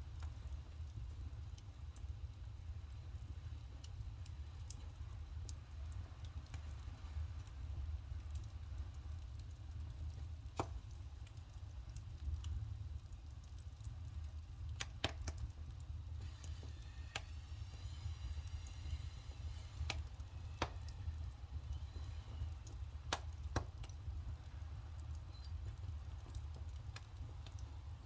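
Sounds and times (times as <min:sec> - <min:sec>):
firewood crackling and popping: 0:00.0 - 0:28.0.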